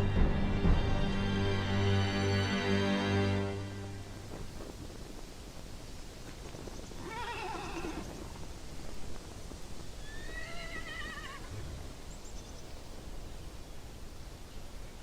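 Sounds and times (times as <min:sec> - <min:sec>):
horse whinnying: 0:07.0 - 0:08.2, 0:10.0 - 0:11.6.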